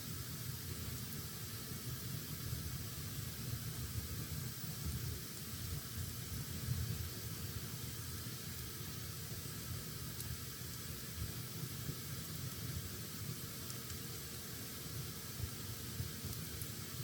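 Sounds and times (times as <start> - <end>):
faint fire crackle: 0.0 - 17.0
fire burning in a fireplace: 0.0 - 17.0.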